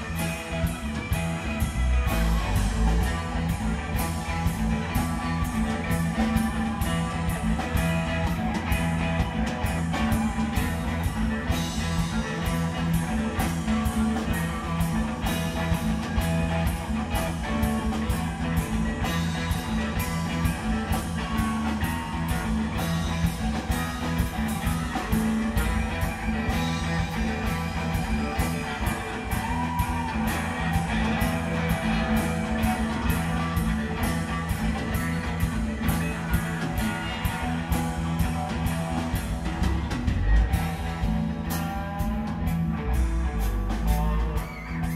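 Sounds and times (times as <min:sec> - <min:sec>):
bass: 0:00.0 - 0:44.9
drum kit steady beat: 0:00.0 - 0:44.9
electric guitar: 0:00.0 - 0:44.9.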